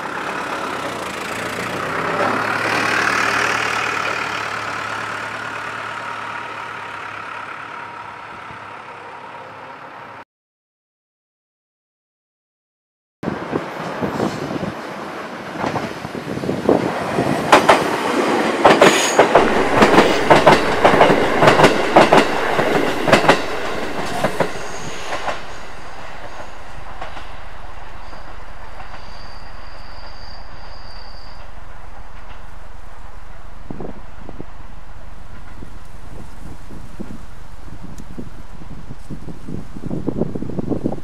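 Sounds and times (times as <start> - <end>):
train wheels clacking over rail joints: 0.0 - 7.2, 17.2 - 37.2.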